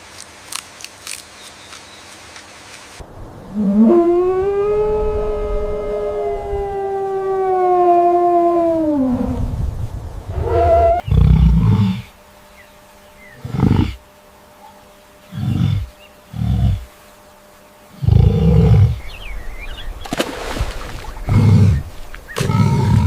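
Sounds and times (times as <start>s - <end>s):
animal giving deep roaring grunts: 10.3s - 12.1s, 13.4s - 14.0s, 15.3s - 16.9s, 18.0s - 19.1s, 21.2s - 23.0s.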